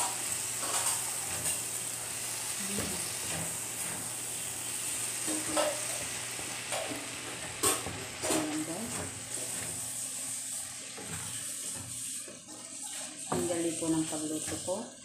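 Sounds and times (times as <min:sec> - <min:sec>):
meat and vegetables sizzling in pan: 0:00.0 - 0:15.0
spatula stirring and scraping: 0:05.2 - 0:15.0.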